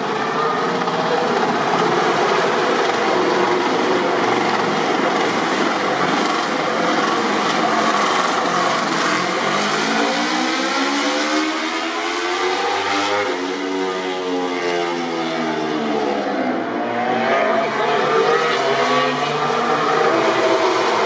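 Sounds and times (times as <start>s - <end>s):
steady rushing noise: 0.0s - 11.7s
racing motorcycle engine revving: 1.4s - 21.0s.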